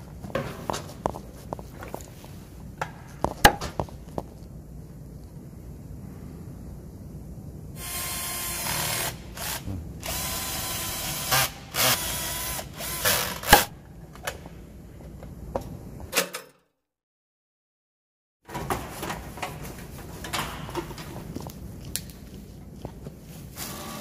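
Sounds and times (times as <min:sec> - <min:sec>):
cordless drill driving screws: 0:07.8 - 0:13.7.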